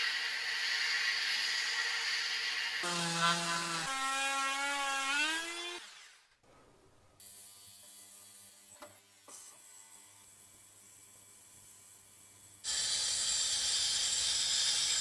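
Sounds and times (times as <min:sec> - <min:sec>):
steady hiss: 0:00.0 - 0:02.8.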